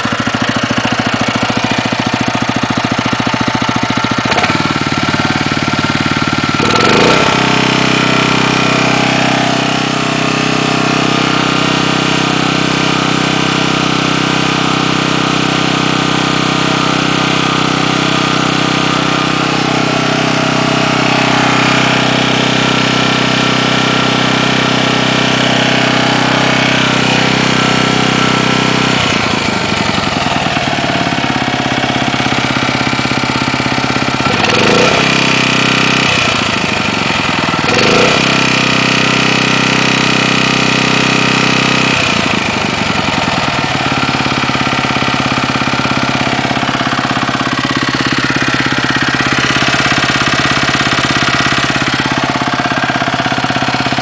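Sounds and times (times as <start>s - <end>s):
small engine with tapping knock: 2.5s - 7.7s, 34.2s - 36.7s, 37.6s - 43.3s.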